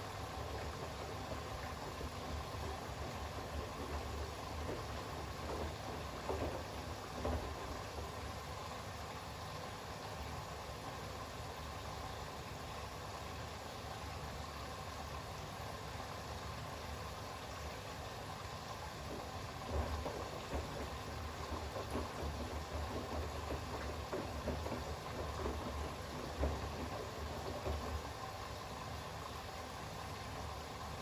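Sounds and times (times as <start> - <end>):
washing machine drum turning: 0.0 - 9.1, 18.7 - 28.8
washing machine hum: 0.0 - 31.0
thuds and sloshing of wet towels: 0.3 - 8.4, 18.9 - 28.2.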